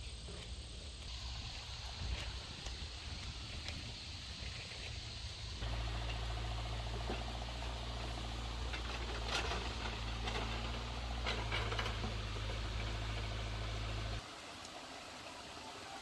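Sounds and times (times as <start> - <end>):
car engine and road drone: 5.1 - 14.2.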